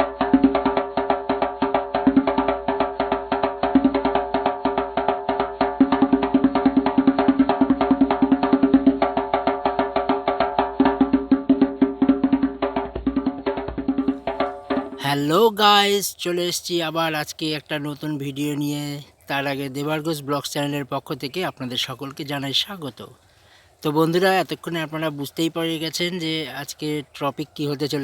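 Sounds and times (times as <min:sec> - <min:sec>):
sharp percussion strikes: 0:14.0 - 0:15.4.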